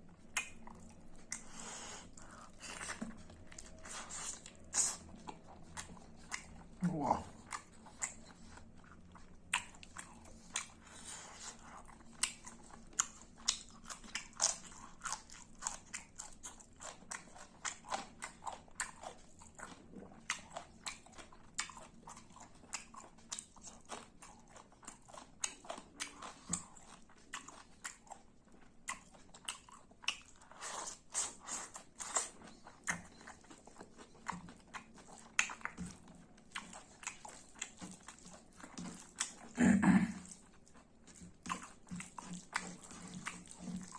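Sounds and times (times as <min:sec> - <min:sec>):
chewing and crunching food: 0:00.0 - 0:43.9.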